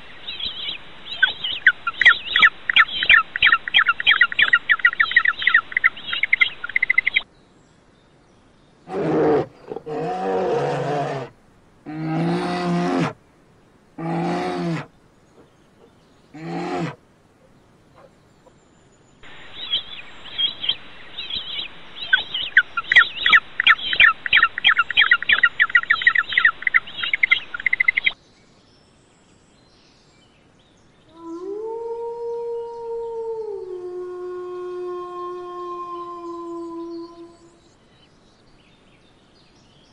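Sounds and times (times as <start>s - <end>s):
wolf howling: 8.9s - 11.3s, 11.9s - 13.2s, 14.0s - 17.0s, 31.1s - 37.5s
bear growling: 8.9s - 13.2s, 14.0s - 18.2s.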